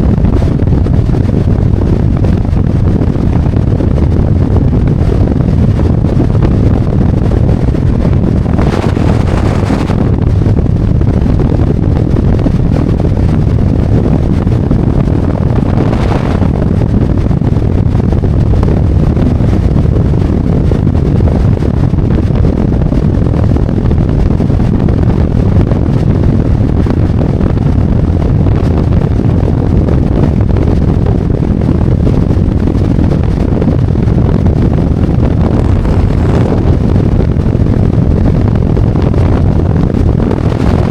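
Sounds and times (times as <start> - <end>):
wind rush on microphone: 0.0 - 40.9
motorcycle engine rumble: 33.3 - 37.4.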